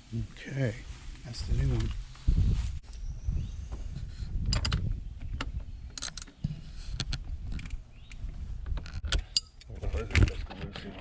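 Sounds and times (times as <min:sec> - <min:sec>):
sharp clicks of parts handled: 0:04.5 - 0:10.3.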